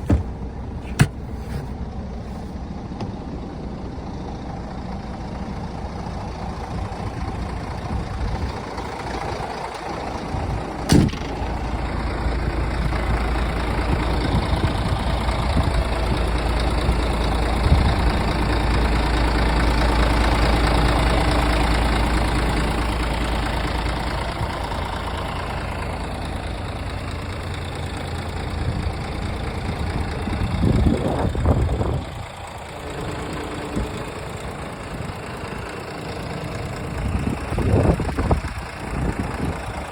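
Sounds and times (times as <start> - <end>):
diesel truck engine idling: 0.0 - 39.9
sharp click: 10.9 - 11.5.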